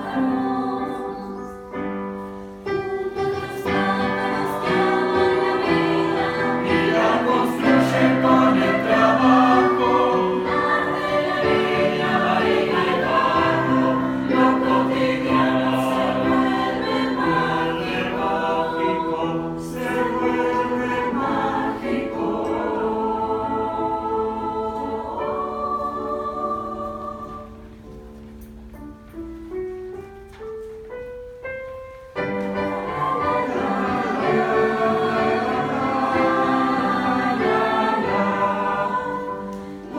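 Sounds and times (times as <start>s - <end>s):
choir singing in harmony: 0.0s - 28.6s, 32.1s - 39.9s.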